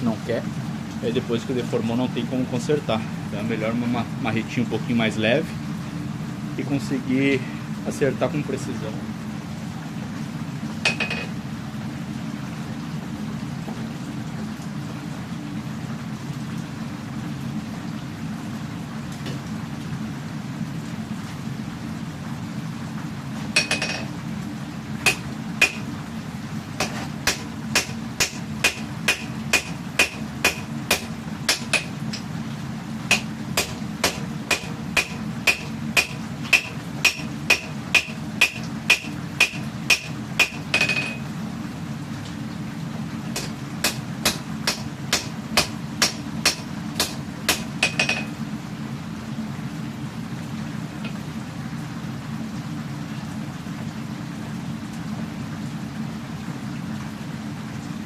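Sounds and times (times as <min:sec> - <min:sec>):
hammer striking steel on anvil: 0:23.6 - 0:24.1, 0:25.1 - 0:25.8, 0:26.8 - 0:32.0, 0:33.1 - 0:41.2, 0:43.4 - 0:48.3.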